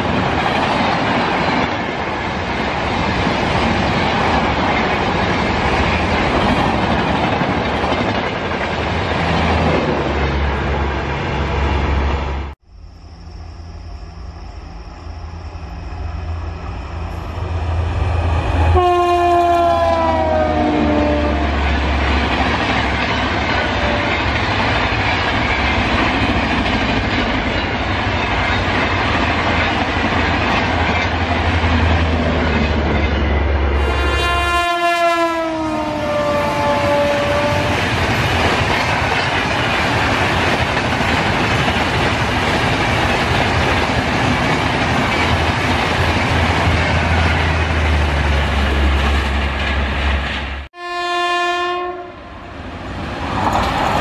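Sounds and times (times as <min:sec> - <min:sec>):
wheel-on-rail clickety-clack: 0:00.0 - 0:10.0, 0:21.6 - 0:33.4, 0:37.6 - 0:50.6, 0:53.2 - 0:54.0
locomotive horn: 0:18.5 - 0:21.9, 0:23.6 - 0:24.3, 0:33.7 - 0:37.9, 0:50.8 - 0:52.4.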